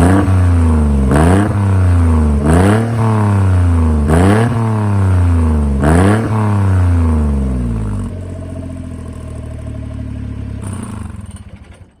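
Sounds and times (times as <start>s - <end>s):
truck engine revving and idling: 0.0s - 12.0s.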